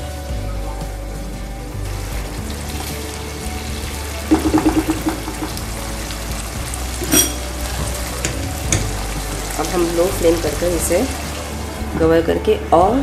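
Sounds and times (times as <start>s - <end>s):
background music: 0.0s - 13.0s
curry sizzling and bubbling: 0.9s - 13.0s
sharp clink: 7.0s - 7.5s.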